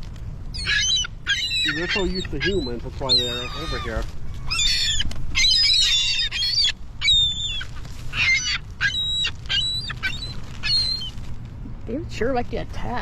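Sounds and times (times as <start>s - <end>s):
birds calling: 0.5s - 11.7s.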